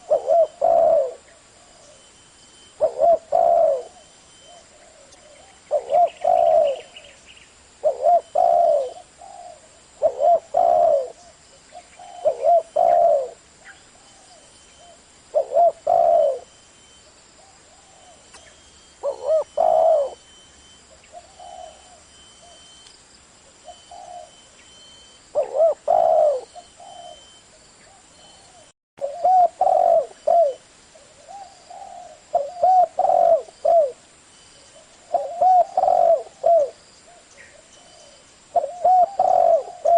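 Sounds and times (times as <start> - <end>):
dove cooing: 0.0 - 2.1, 2.7 - 7.2, 7.8 - 16.6, 17.4 - 22.7, 23.6 - 34.0, 34.7 - 39.9.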